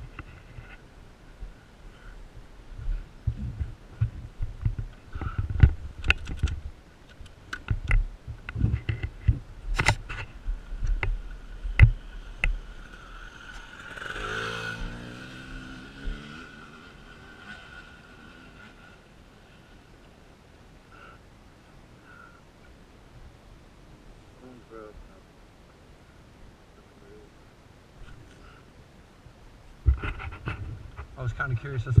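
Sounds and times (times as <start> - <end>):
motorcycle engine passing: 11.8 - 19.8.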